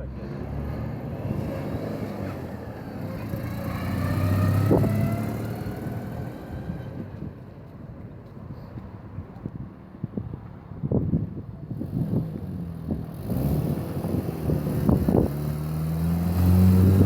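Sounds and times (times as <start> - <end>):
car driving past: 0.0 - 7.0, 13.2 - 17.0.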